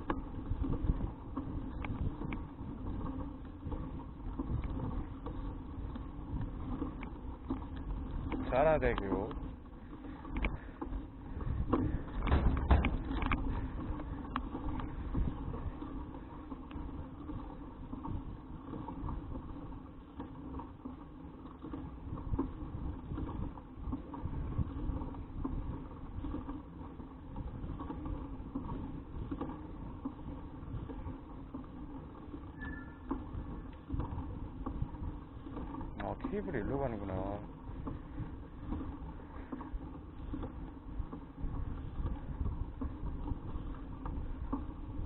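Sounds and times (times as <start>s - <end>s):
bicycle frame rattle: 0.0s - 45.0s
bicycle tyre rumble: 0.0s - 45.0s
wind on microphone: 10.3s - 16.3s, 32.6s - 45.0s
knocks and rattles: 11.6s - 13.9s.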